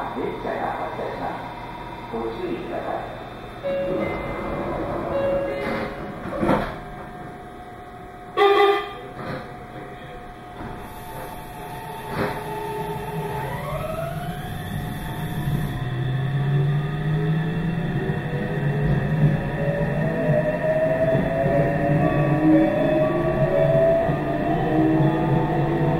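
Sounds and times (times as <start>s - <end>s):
train rumbling: 0.0s - 25.9s
train horn blast: 8.3s - 9.2s
traction motor whine: 10.6s - 25.9s.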